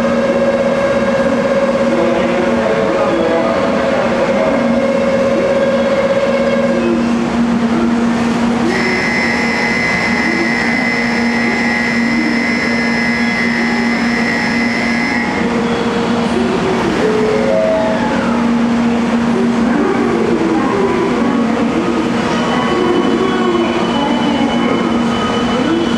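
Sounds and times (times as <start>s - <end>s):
electric train humming: 7.0s - 25.9s.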